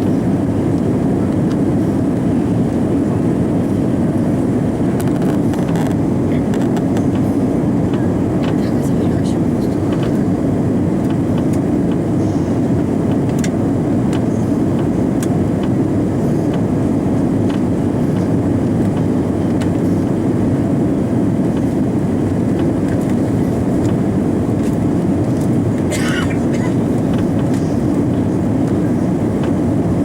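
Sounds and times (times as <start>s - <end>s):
airliner cabin engine rumble: 0.0s - 30.0s
faint clicks in cabin: 0.7s - 1.6s, 5.0s - 7.3s, 7.9s - 8.8s, 9.7s - 10.3s, 11.0s - 12.1s, 13.1s - 15.8s, 17.4s - 20.1s, 21.5s - 29.6s.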